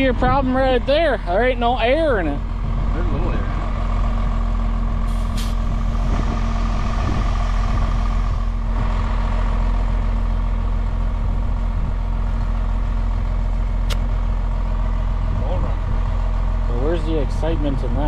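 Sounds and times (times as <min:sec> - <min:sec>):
tractor engine idling: 0:00.0 - 0:18.0
hiss: 0:05.1 - 0:05.6
sharp click: 0:13.8 - 0:14.1.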